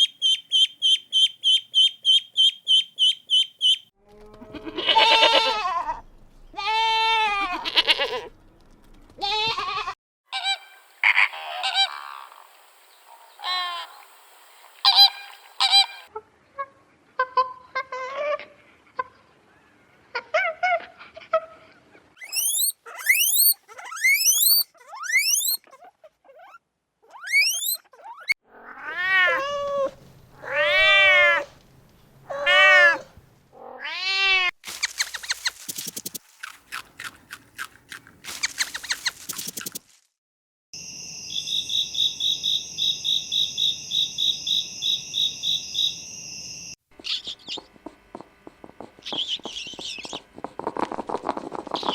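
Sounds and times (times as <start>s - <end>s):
high rising peeps: 22.2s - 25.6s, 27.2s - 27.8s.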